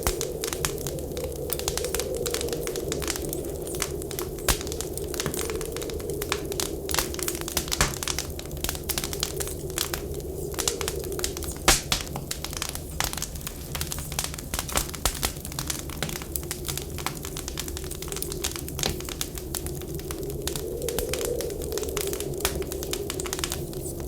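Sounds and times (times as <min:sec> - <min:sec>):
low wind whistle: 0:00.0 - 0:12.1, 0:19.4 - 0:24.0
wood fire crackling: 0:00.0 - 0:24.0.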